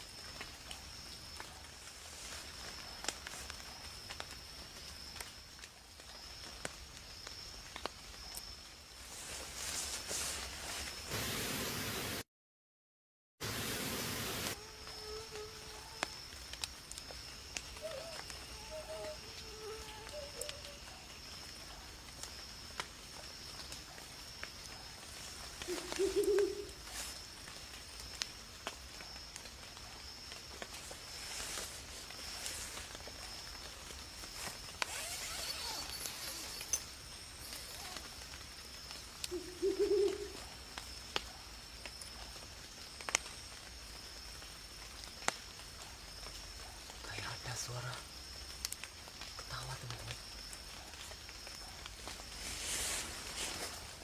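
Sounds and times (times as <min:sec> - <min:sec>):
high insect drone: 0:13.4 - 0:41.2
cricket trilling: 0:14.1 - 0:54.0
faint warbling animal calls: 0:17.6 - 0:21.0, 0:25.6 - 0:26.8, 0:34.9 - 0:36.8, 0:39.3 - 0:40.4
low animal call: 0:34.9 - 0:36.8.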